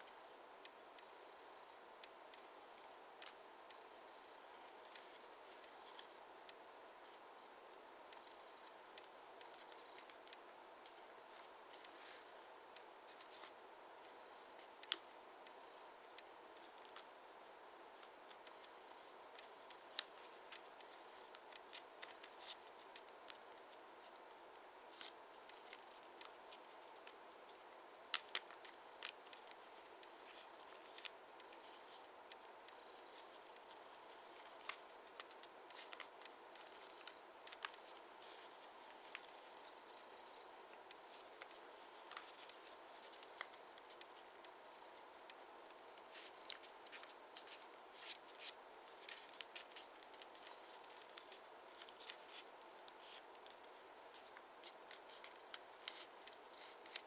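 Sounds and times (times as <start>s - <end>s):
faint steady hiss: 0.0s - 57.0s
paper being folded and creased: 18.0s - 24.2s, 24.9s - 45.4s, 46.0s - 57.0s.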